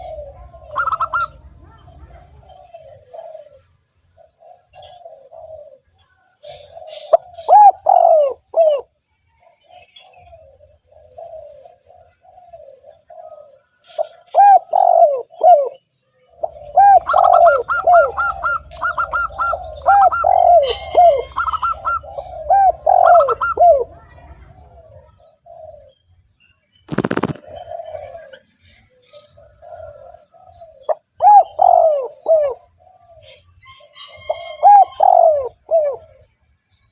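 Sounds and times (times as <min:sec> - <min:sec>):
dove cooing: 0:00.0 - 0:26.0, 0:26.9 - 0:36.4.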